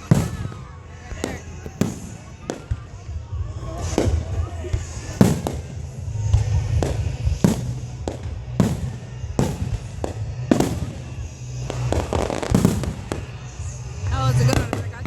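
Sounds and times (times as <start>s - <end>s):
fireworks shells bursting: 3.8s - 14.9s.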